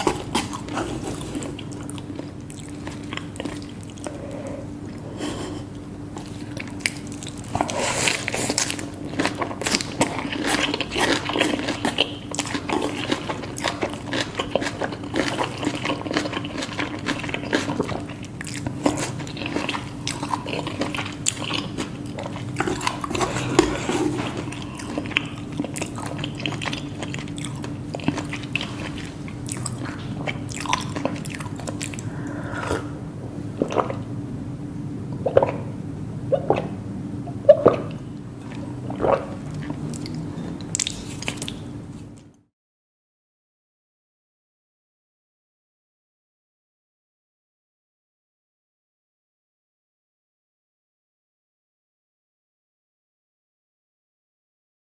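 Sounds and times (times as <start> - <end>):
biting and crunchy chewing: 0.0 - 4.3, 6.1 - 32.9, 37.5 - 42.3
faint low hum: 0.0 - 42.5.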